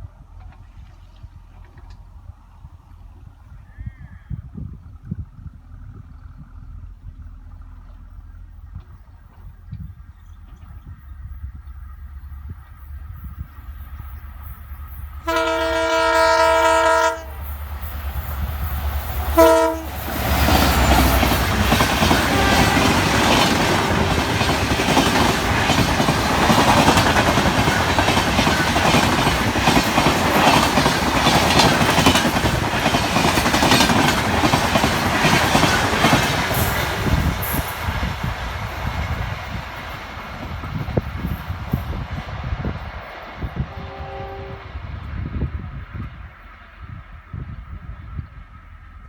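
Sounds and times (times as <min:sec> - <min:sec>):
train passing at speed: 0:04.5 - 0:49.0
train horn blast: 0:15.2 - 0:17.5, 0:19.2 - 0:24.4, 0:43.5 - 0:45.0.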